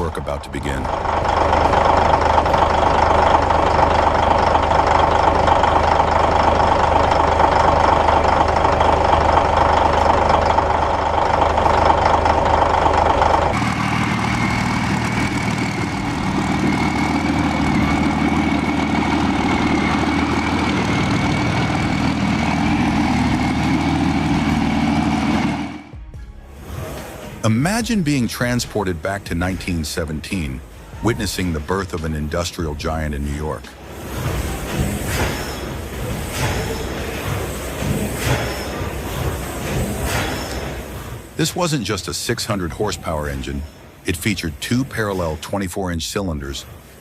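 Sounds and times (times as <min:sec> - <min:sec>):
diesel engine running: 0:00.0 - 0:45.6
high whine: 0:13.1 - 0:26.1.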